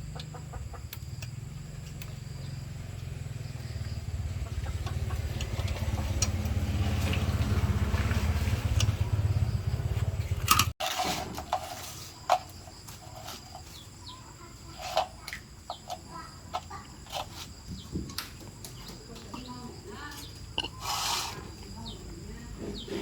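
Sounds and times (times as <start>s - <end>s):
motor rumbling: 0.0s - 10.8s.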